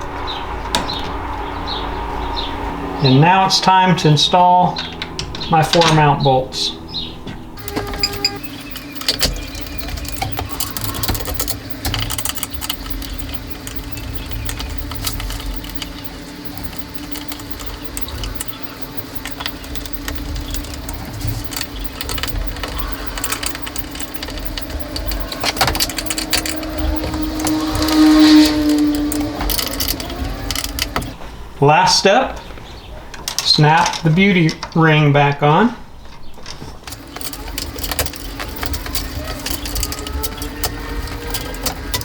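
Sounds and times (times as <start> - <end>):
steady low hum: 0.0 - 31.8
small metal clicks and rattles: 7.6 - 31.2, 32.4 - 35.0, 36.1 - 42.0.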